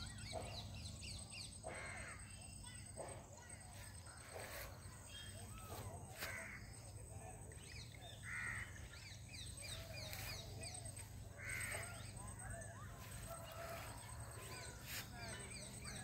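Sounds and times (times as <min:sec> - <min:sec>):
birds calling: 0:04.0 - 0:16.0.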